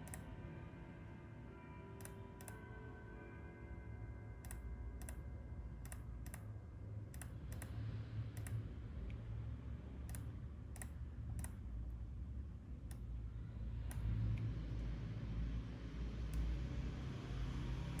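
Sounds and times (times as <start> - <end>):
computer mouse and keyboard clicks: 0.0 - 0.2, 4.4 - 5.2, 5.8 - 6.5, 7.1 - 7.8, 8.4 - 8.6, 10.0 - 11.6
low steady hum: 0.0 - 18.0.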